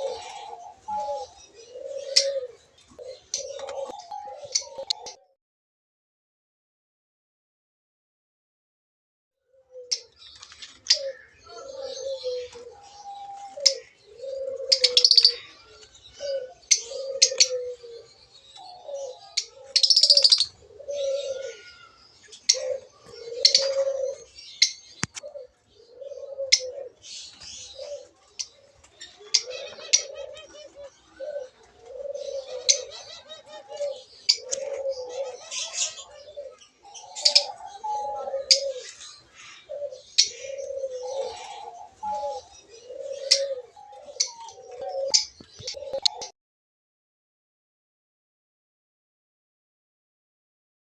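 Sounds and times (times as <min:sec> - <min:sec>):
low cooing: 0:00.0 - 0:05.3, 0:10.9 - 0:24.4, 0:25.2 - 0:27.0, 0:27.6 - 0:46.3
birds chirping and chattering: 0:00.0 - 0:05.4, 0:09.6 - 0:46.3.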